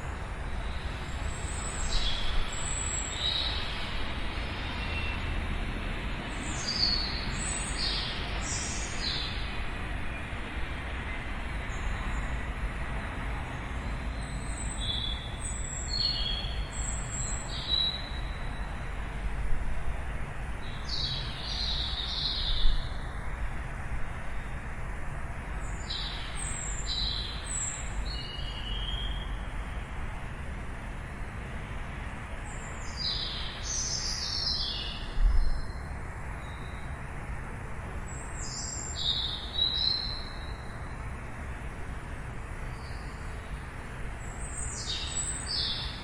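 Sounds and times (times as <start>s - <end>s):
distant city traffic rumble: 0.0s - 46.0s
small birds chirping: 6.3s - 9.6s, 14.1s - 18.6s.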